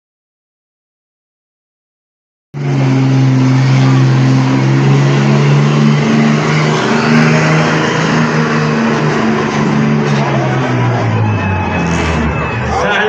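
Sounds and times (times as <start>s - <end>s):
truck engine running hard: 2.6s - 13.0s.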